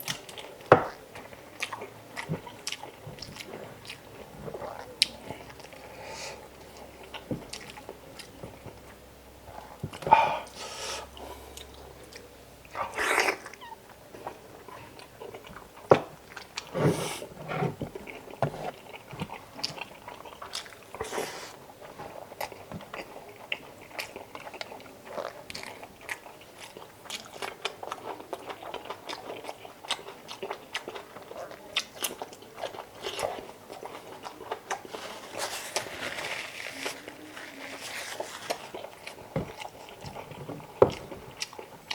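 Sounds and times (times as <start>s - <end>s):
person biting food: 21.0s - 21.6s.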